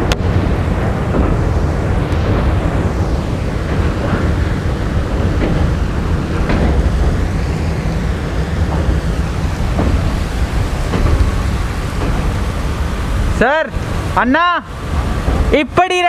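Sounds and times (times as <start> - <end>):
wind buffeting microphone: 0.0 - 15.9
train rumble: 0.0 - 16.0.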